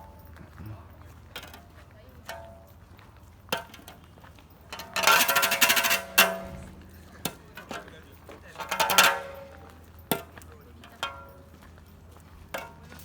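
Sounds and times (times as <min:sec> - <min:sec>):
metal debris scraping and clanking: 0:04.7 - 0:09.7.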